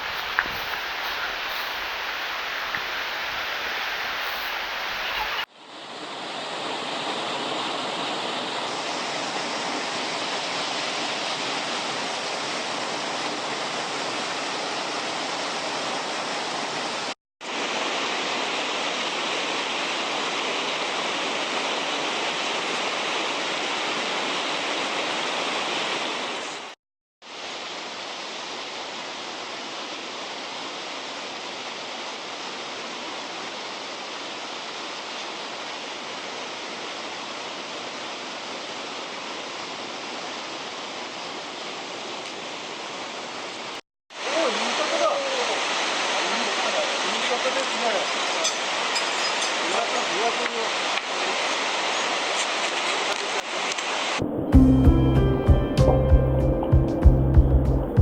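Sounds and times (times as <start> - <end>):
cascading mountain water: 0.0 - 58.0.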